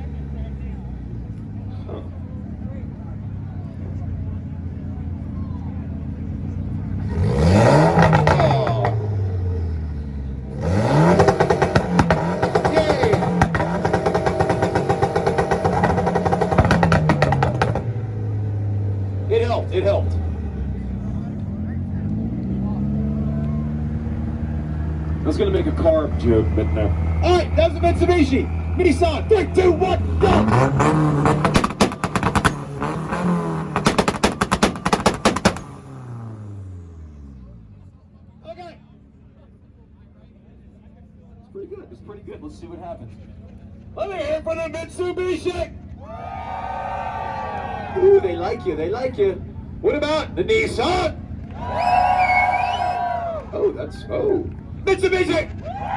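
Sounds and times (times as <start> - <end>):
exhaust popping and crackling: 6.4 - 9.3, 10.6 - 19.9, 23.4 - 37.1
car engine revving on limiter: 6.8 - 37.8.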